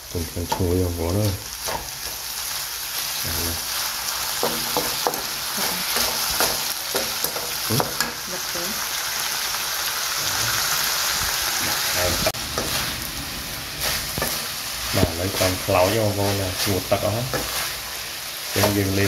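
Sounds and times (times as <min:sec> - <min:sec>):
pork skin sizzling in wok: 0:00.0 - 0:19.0
wooden spatula scraping wok: 0:10.2 - 0:19.0.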